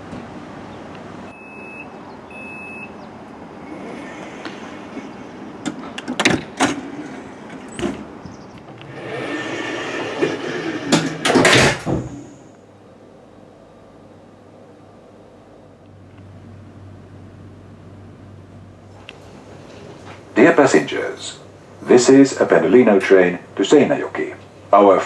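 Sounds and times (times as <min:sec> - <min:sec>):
train warning beeps: 0:01.3 - 0:03.1
sliding doors clunking: 0:03.2 - 0:12.5, 0:18.9 - 0:24.6
rushing hiss of doors: 0:03.6 - 0:06.0, 0:08.9 - 0:12.4
doors closing with heavy thuds: 0:03.6 - 0:12.4.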